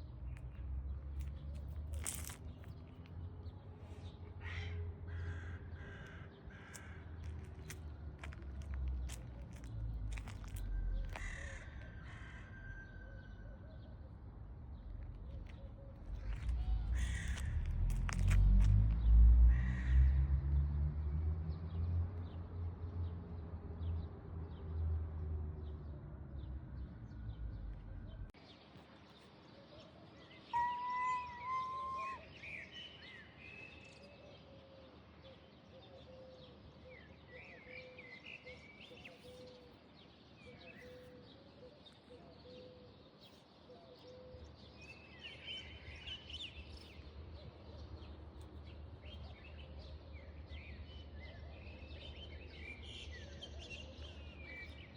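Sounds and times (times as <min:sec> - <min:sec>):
faint outdoor background noise: 0:00.0 - 0:54.9
small birds chirping: 0:14.8 - 0:19.1.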